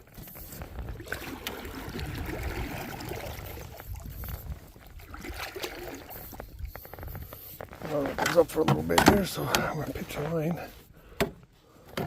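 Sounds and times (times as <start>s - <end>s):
river water splashing: 0.9s - 6.7s.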